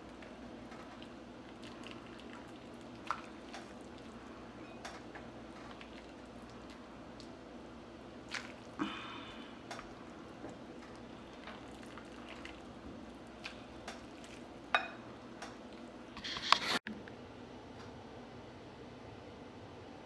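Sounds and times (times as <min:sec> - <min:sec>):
liquid pouring: 0:00.0 - 0:07.4, 0:08.0 - 0:16.2.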